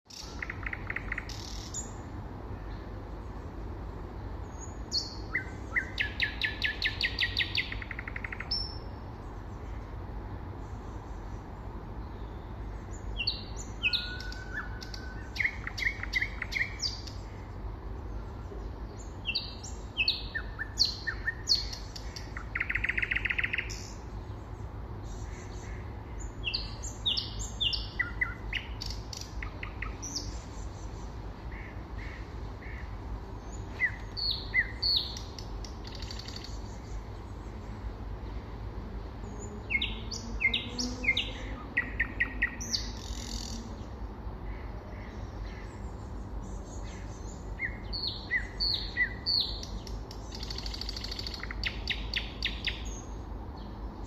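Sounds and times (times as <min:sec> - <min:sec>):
nightingale singing: 0:00.1 - 0:02.9, 0:04.4 - 0:09.8, 0:10.6 - 0:38.4, 0:39.1 - 0:53.8.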